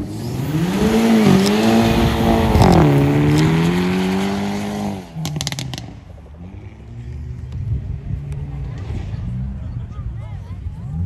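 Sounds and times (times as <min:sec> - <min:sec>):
car engine revving through upshifts: 0:00.0 - 0:09.7
exhaust pops: 0:05.2 - 0:06.4.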